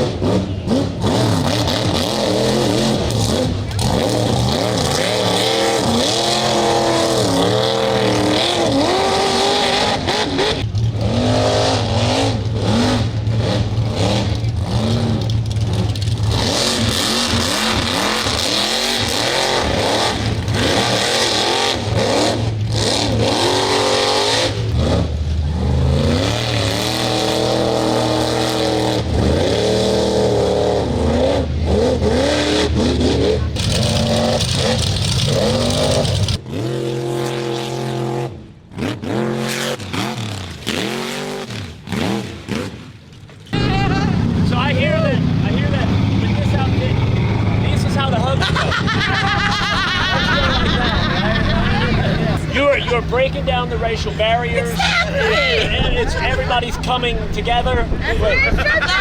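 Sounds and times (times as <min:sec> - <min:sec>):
truck engines revving hard: 0:00.0 - 0:59.0.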